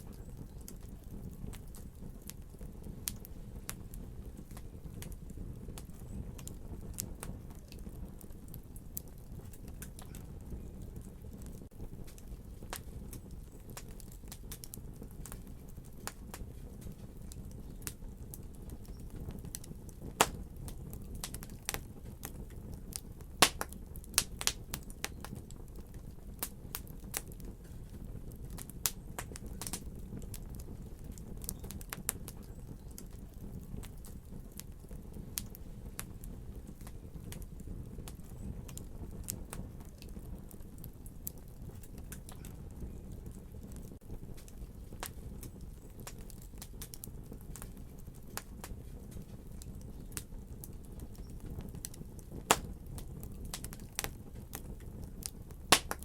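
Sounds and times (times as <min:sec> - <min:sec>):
fire burning rumble: 0:00.0 - 0:56.0
fire pops and snaps: 0:00.0 - 0:56.0.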